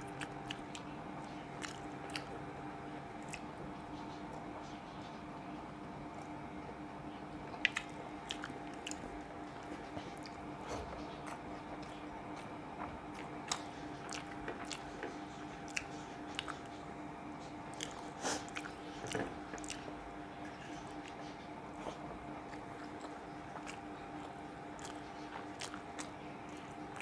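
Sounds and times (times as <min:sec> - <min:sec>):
man chewing with wet clicks: 0:00.0 - 0:27.0
steady low hum: 0:00.0 - 0:27.0.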